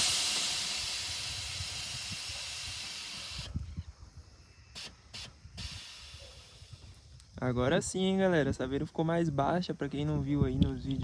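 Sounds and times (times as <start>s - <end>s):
air suspension hissing: 0.0s - 3.8s, 4.7s - 7.2s
short puffs of released air: 0.0s - 3.8s, 4.7s - 7.2s.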